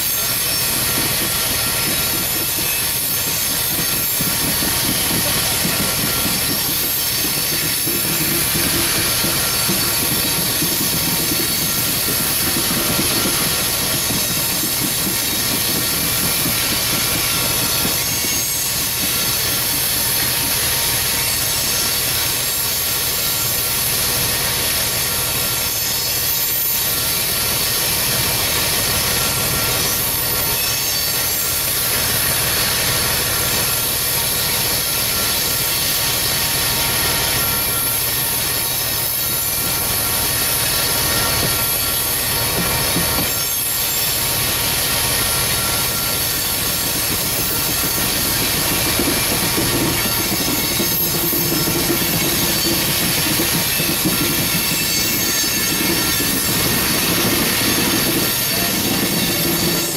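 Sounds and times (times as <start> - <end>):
high thin tones: 0.0 - 21.4, 37.2 - 59.9
steel wheels rolling on rail: 0.0 - 59.9.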